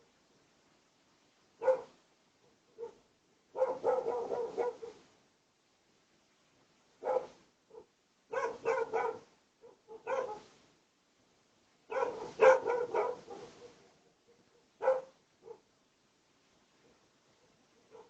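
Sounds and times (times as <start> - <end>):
dog barking: 1.6 - 5.0, 7.0 - 10.5, 11.9 - 15.7, 16.9 - 18.0.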